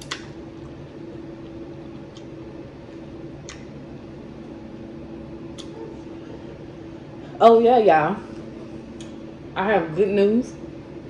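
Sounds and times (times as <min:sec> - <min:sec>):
low room hum: 0:00.0 - 0:11.0
soft chewing: 0:00.1 - 0:03.7, 0:05.5 - 0:06.7.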